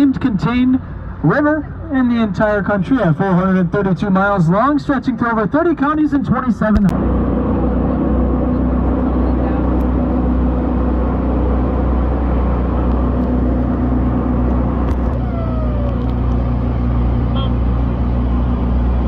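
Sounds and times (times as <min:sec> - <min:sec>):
boat engine running: 0:05.8 - 0:19.0.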